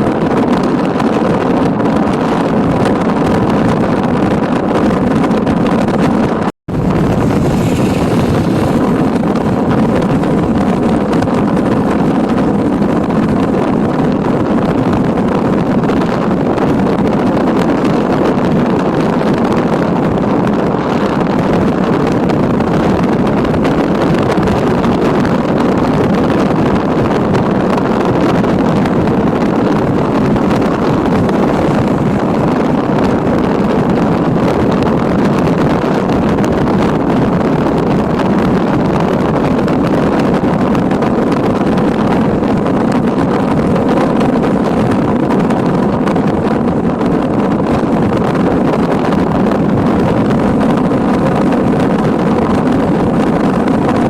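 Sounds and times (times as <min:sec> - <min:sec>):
wind rushing over microphone: 0:00.0 - 0:54.0
road noise: 0:05.8 - 0:13.4, 0:27.6 - 0:42.1.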